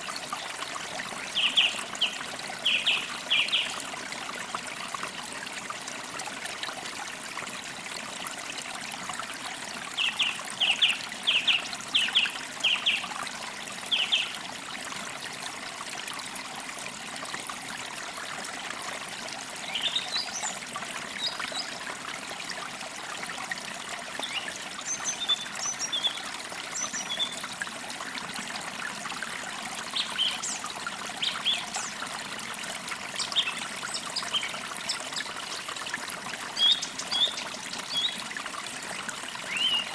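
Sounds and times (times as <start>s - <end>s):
stream trickling: 0.0s - 39.9s
woodland birds chirping: 36.6s - 38.2s, 39.5s - 39.9s.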